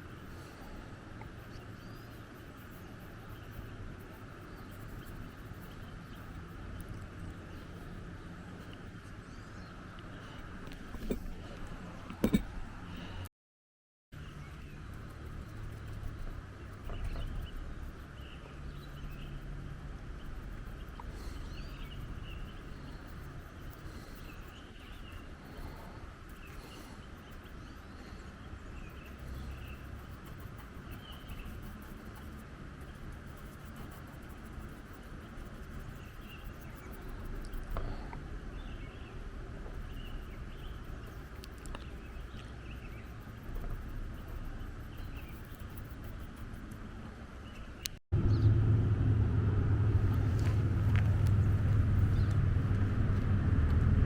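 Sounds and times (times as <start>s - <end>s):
pencil scratching on paper: 0.0s - 8.7s, 12.2s - 12.4s, 14.4s - 19.5s, 20.1s - 27.8s, 28.8s - 37.8s, 39.7s - 46.8s
small bird chirping: 0.0s - 11.4s, 14.2s - 19.5s, 20.1s - 46.8s, 50.2s - 52.4s
wind rumbling on microphone: 47.8s - 54.0s.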